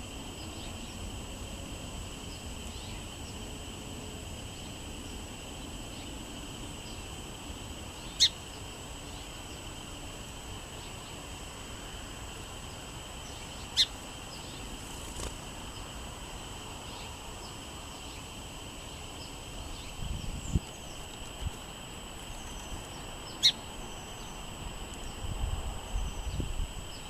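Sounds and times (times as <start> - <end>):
bird chirps: 8.0 - 8.4, 13.3 - 14.7, 22.3 - 25.2
wind gust on microphone: 19.9 - 20.7, 25.1 - 27.0.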